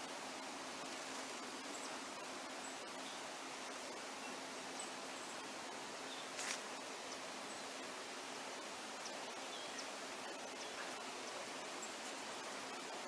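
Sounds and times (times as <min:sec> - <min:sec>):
steady outdoor hiss: 0:00.0 - 0:13.0
brief rustle: 0:06.3 - 0:06.7.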